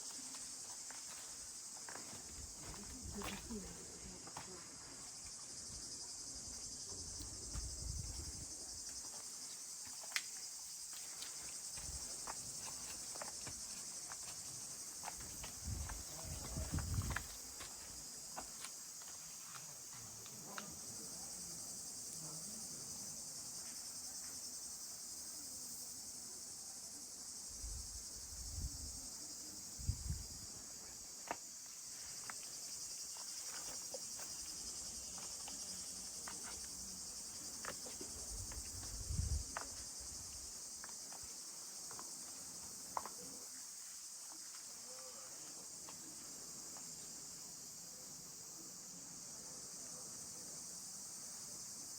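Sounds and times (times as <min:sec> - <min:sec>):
insects chirring: 0:00.0 - 0:51.9.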